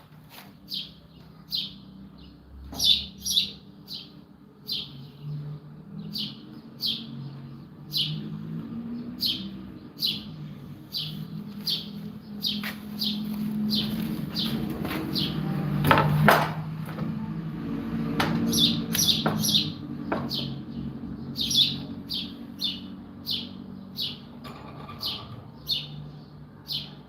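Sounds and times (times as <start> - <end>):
small bird chirping: 0.6 - 8.4, 9.0 - 15.4, 18.4 - 24.4.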